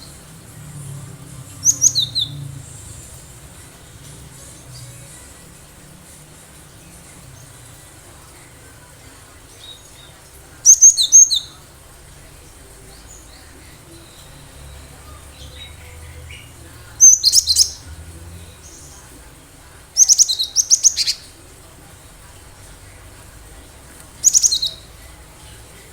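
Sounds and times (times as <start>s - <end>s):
bird chirping rapidly: 1.5s - 3.2s, 10.7s - 11.6s, 14.1s - 19.0s, 19.9s - 21.3s, 24.2s - 24.9s.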